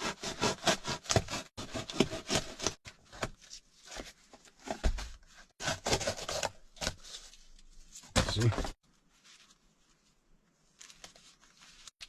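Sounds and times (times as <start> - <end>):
cardboard box being cut: 0.0 - 2.8, 5.6 - 7.0.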